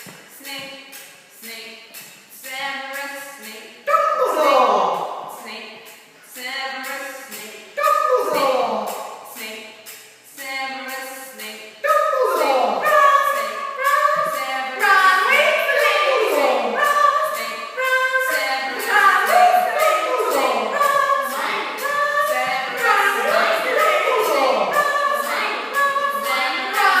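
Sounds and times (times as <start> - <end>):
high voices vocalising together: 3.4 - 5.5, 7.2 - 9.6, 11.8 - 27.0.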